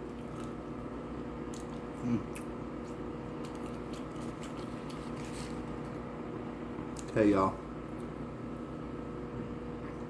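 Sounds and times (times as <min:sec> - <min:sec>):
person chewing: 0:00.0 - 0:00.7, 0:01.4 - 0:06.0
room hum: 0:00.0 - 0:10.0.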